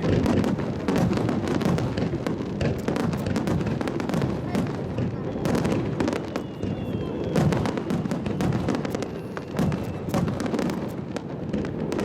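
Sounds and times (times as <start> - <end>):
fireworks booming: 0.0 - 12.0
fireworks crackling and popping: 0.0 - 12.0.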